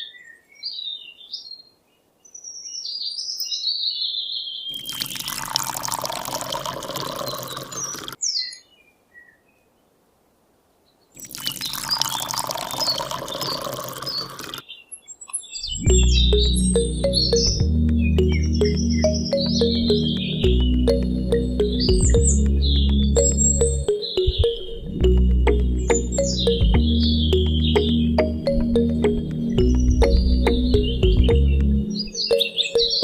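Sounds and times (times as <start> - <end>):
birds chirping: 0.0 - 9.8, 10.9 - 33.0
water pouring and splashing: 4.8 - 8.2, 11.2 - 14.6.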